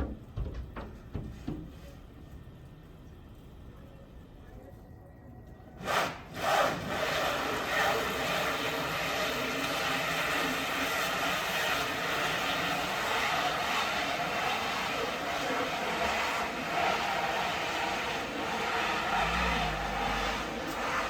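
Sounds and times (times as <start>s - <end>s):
steady rushing noise: 5.8s - 21.0s
car engine droning: 9.8s - 21.0s
door rubbing scrapes: 10.5s - 21.0s.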